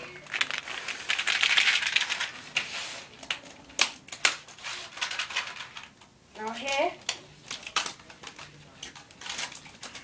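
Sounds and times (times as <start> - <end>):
treats rattling in shaken pouch: 0.2 - 2.4.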